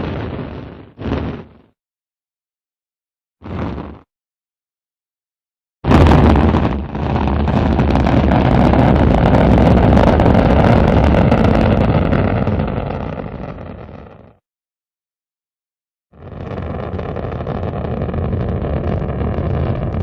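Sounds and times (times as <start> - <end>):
rocket engines roaring: 16.2 - 20.0.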